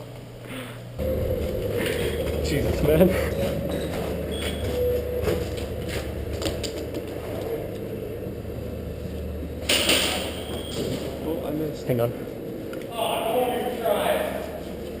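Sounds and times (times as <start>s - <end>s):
low rumble: 1.0s - 12.9s.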